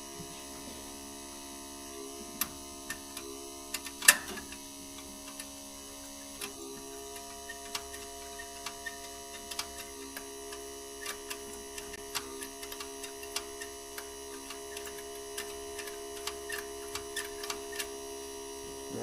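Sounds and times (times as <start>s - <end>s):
fuel pump humming: 0.0s - 19.0s.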